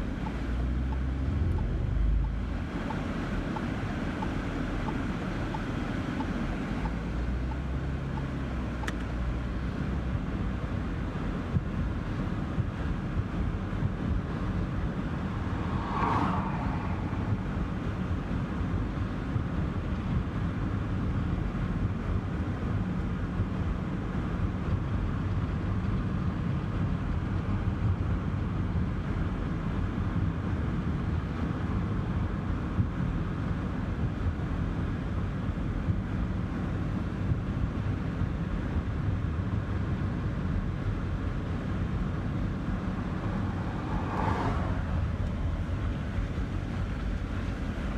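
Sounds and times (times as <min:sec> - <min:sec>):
car road and engine rumble: 0:00.0 - 0:47.9
brief swoosh: 0:15.4 - 0:17.4.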